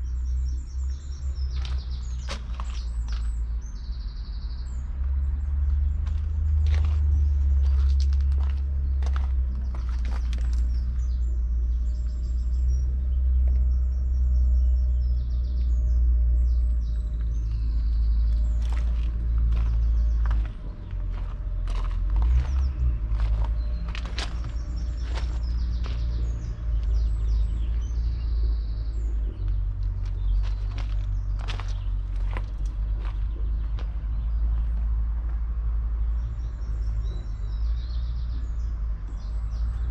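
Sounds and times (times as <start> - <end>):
birds chirping: 0.0 - 39.9
tractor diesel engine rumbling: 15.8 - 37.6.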